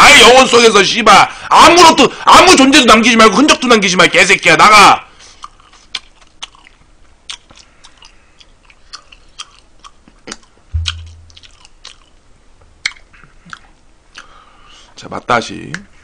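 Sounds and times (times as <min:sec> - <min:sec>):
chewing clicks and snaps: 0:05.4 - 0:10.6
dull low thump: 0:10.8 - 0:11.5.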